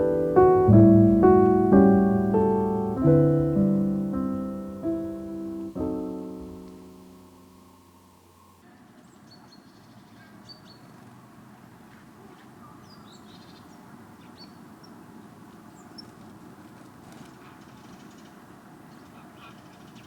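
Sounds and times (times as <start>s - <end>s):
low outdoor background noise: 0.0s - 20.0s
small birds chirping: 3.6s - 11.1s, 12.2s - 20.0s.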